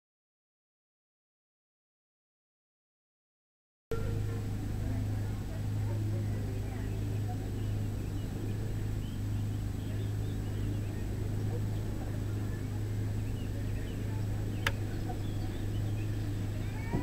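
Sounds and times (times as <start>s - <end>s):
electric train humming: 3.9s - 17.0s
faint bird chirps: 6.8s - 17.0s.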